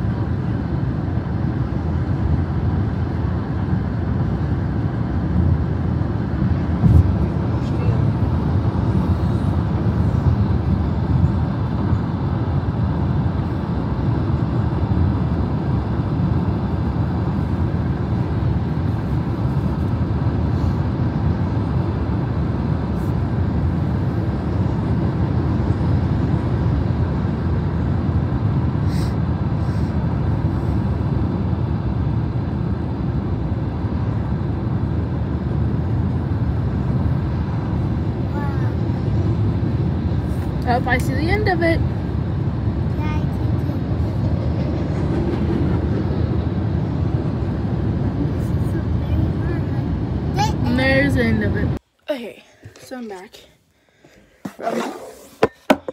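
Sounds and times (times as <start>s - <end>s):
train passing rumble: 0.0s - 51.8s.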